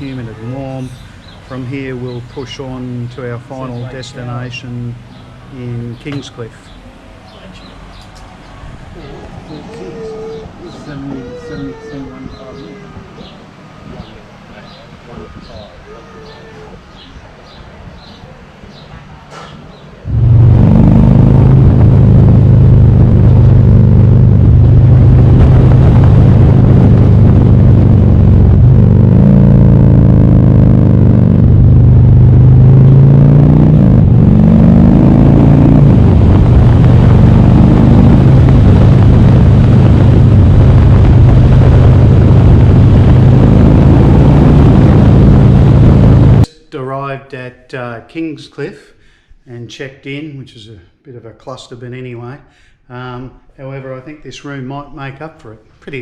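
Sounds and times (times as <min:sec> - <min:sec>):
motorcycle engine running: 0:20.0 - 0:46.4.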